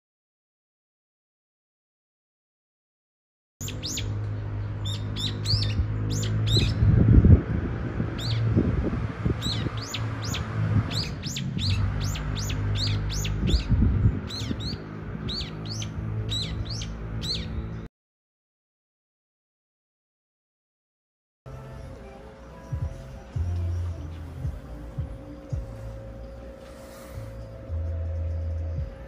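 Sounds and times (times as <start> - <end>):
low rumble: 4.2 - 17.8, 22.7 - 29.0
bird calling sharp notes: 4.8 - 6.8, 9.4 - 17.8
low steady hum: 21.5 - 29.0.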